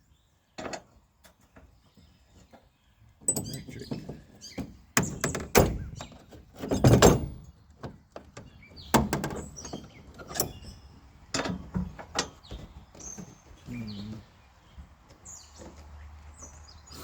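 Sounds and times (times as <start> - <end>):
irregular knocks and clunks: 2.4 - 15.8.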